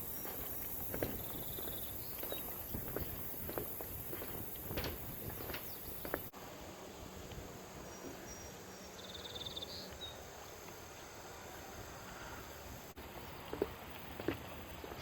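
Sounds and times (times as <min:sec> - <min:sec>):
footstep: 0:00.0 - 0:06.4
distant traffic: 0:00.0 - 0:15.0.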